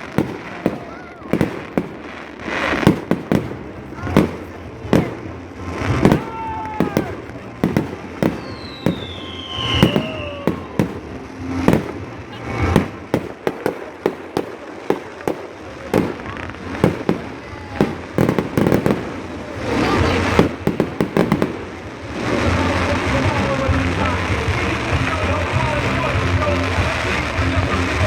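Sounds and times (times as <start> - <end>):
firework crackling: 0.0 - 28.0
fireworks bangs: 0.0 - 28.0
falling firework whistle: 6.0 - 13.1.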